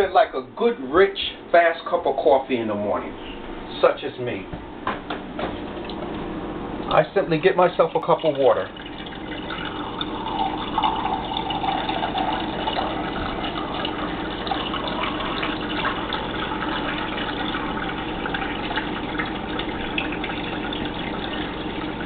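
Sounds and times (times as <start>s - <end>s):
tap water filling a cup: 6.8s - 22.0s.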